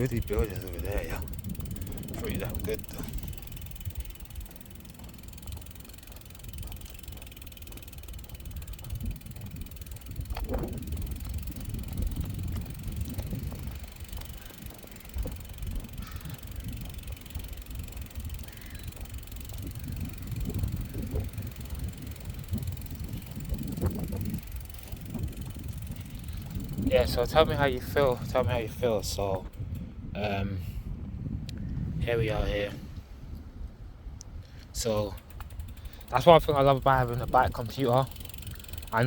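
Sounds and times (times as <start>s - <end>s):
bicycle tyres rolling: 0.0s - 39.0s
wind rumbling on microphone: 0.0s - 39.0s.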